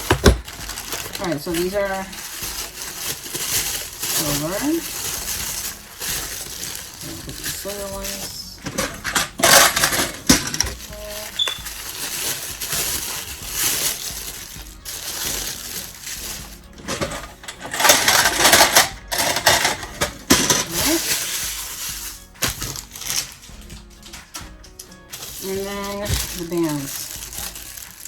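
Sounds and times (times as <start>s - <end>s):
background music: 0.0s - 28.0s
packaging rustling: 0.0s - 28.0s
metal rings jingling: 9.4s - 13.0s.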